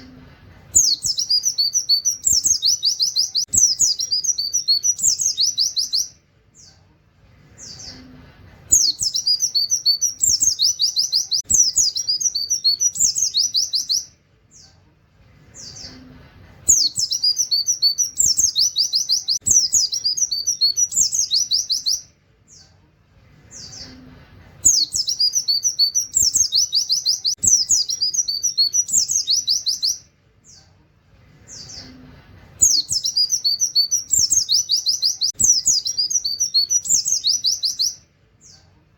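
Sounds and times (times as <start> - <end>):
bird singing rapid trills: 0.8 - 6.2, 8.7 - 14.7, 16.7 - 22.1, 24.7 - 30.0, 32.6 - 38.0
bird chirps: 0.8 - 6.8, 7.5 - 14.8, 16.7 - 22.8, 23.4 - 30.7, 32.6 - 38.7.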